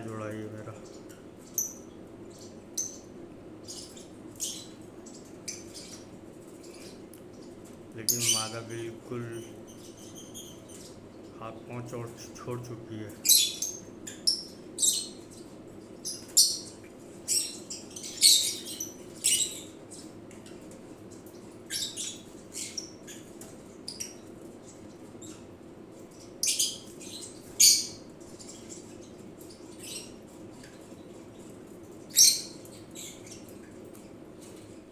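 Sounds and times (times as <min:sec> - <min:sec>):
steady low hum: 0:00.0 - 0:21.4
lovebird chirping: 0:08.0 - 0:11.0.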